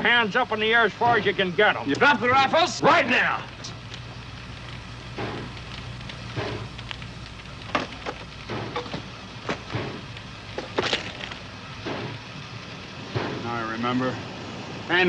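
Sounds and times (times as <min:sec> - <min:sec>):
steady low hum: 0:00.0 - 0:15.0
rifles clattering onto ground: 0:03.6 - 0:11.5.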